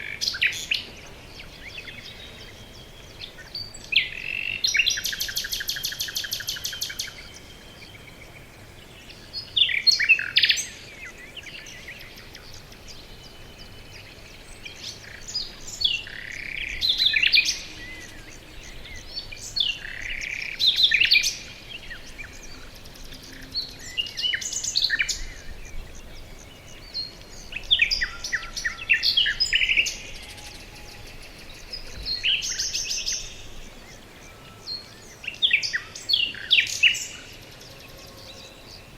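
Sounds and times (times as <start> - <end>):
faint steady hiss: 0.0 - 38.9
songbirds singing: 0.0 - 38.9.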